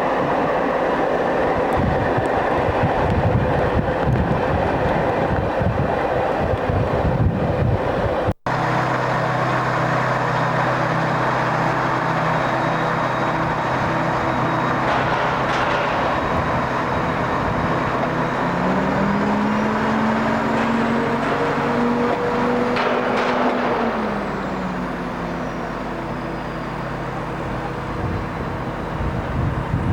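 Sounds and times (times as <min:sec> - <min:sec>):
vehicle engine accelerating: 0:08.5 - 0:29.9.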